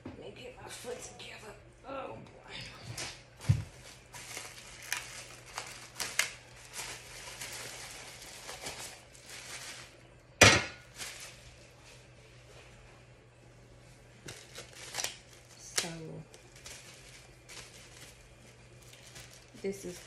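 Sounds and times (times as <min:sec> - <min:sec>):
faint steady hum: 0:00.0 - 0:20.0
packaging rustling: 0:03.4 - 0:10.1, 0:10.8 - 0:11.6, 0:14.2 - 0:20.0.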